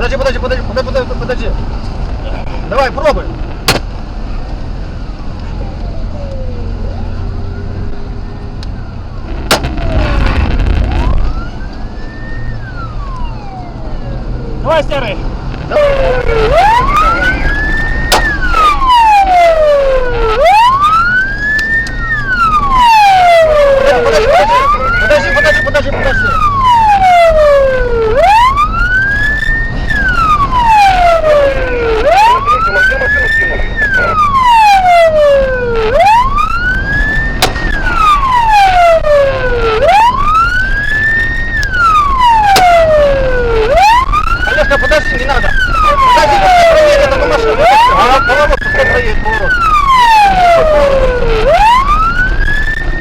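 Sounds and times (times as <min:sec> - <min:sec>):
police siren wailing: 0:00.0 - 0:01.7, 0:02.6 - 0:53.0
vehicle engine rumble: 0:00.0 - 0:53.0
sharp crack: 0:03.5 - 0:04.1, 0:09.3 - 0:12.2, 0:17.9 - 0:18.9, 0:36.7 - 0:38.8, 0:41.6 - 0:43.8.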